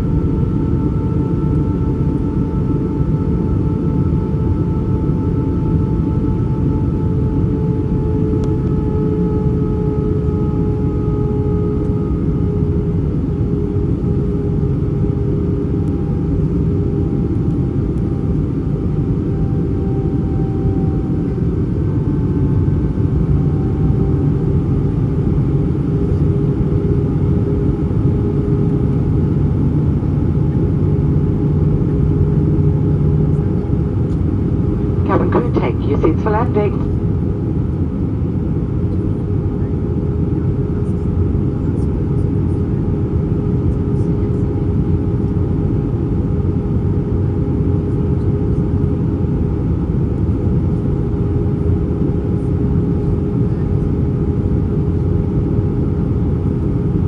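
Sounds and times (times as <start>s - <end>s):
airplane cabin rumble: 17.1s - 37.5s
jet engine tones: 34.9s - 37.0s.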